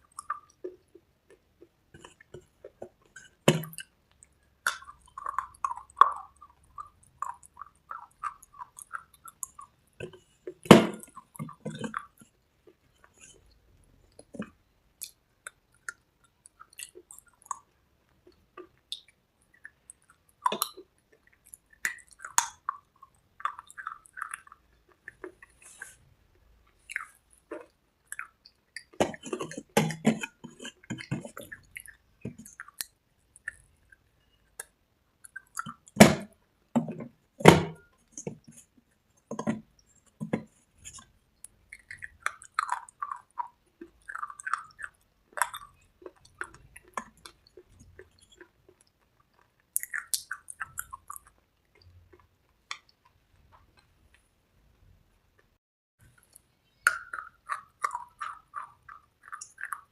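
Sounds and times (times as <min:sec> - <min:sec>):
crunching and chewing: 0:00.0 - 0:54.2, 0:56.0 - 0:59.9.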